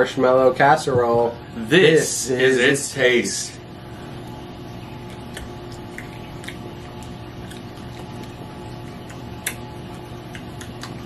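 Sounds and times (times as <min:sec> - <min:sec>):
steady low hum: 0:00.0 - 0:11.0
quiet chewing: 0:04.9 - 0:11.0
mouth and utensil clicks: 0:09.0 - 0:09.7.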